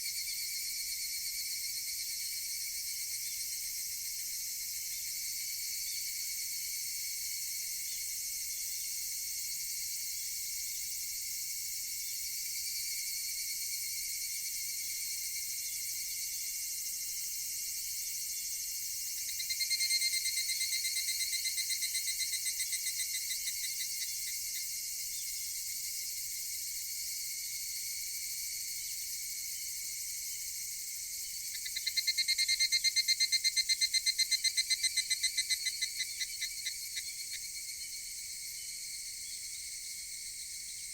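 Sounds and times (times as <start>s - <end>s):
high insect chorus: 0.0s - 40.9s
cicadas calling: 19.2s - 25.6s, 28.8s - 40.9s.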